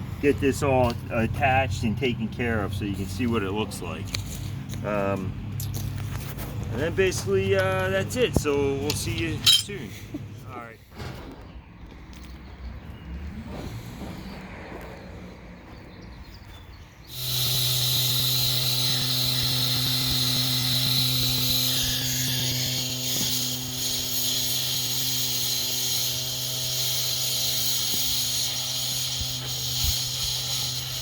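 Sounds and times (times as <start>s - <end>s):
machine humming and hissing: 17.1s - 31.0s.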